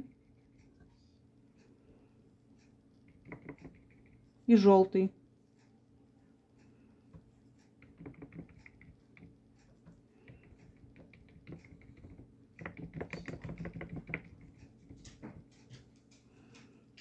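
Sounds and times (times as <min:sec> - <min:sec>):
bristle brush tapping on paper: 0:03.0 - 0:04.2, 0:07.1 - 0:16.0.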